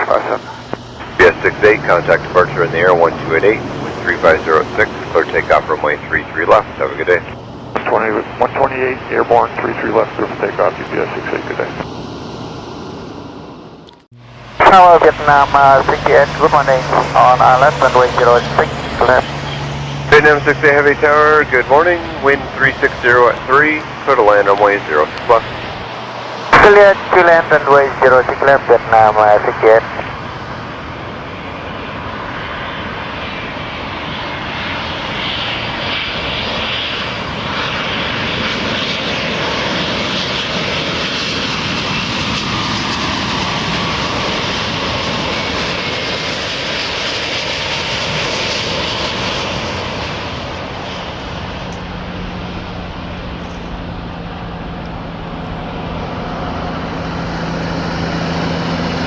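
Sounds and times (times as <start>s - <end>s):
low steady hum: 0.0s - 31.0s
jet engines roaring: 0.0s - 59.0s.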